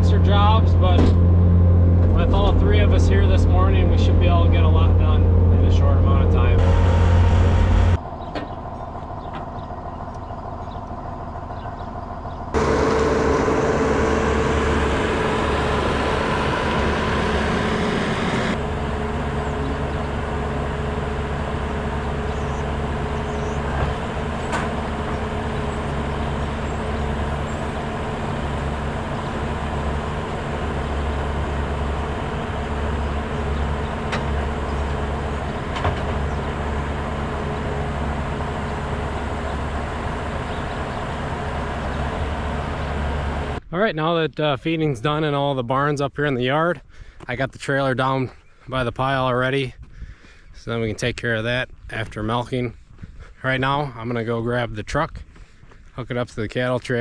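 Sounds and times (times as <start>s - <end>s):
farm machinery engine running: 0.0s - 43.6s.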